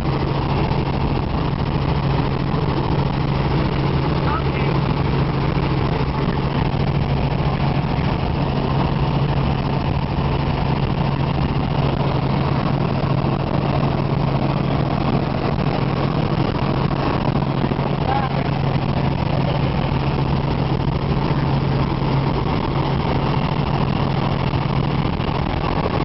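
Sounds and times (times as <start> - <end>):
helicopter engine and rotors drone: 0.0 - 26.0.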